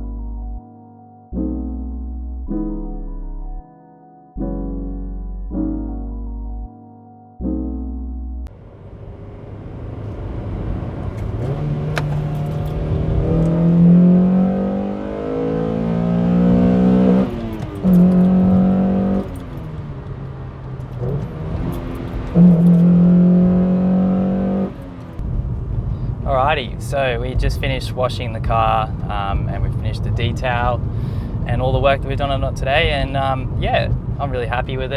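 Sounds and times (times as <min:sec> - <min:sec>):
car engine revving: 0:08.5 - 0:25.7.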